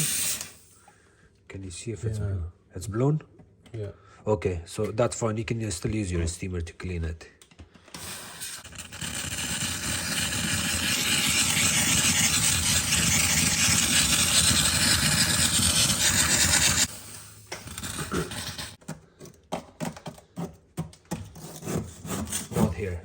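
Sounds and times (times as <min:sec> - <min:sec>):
steamer hissing: 0:00.0 - 0:00.8, 0:08.0 - 0:18.8
scraping and rubbing: 0:08.0 - 0:19.3.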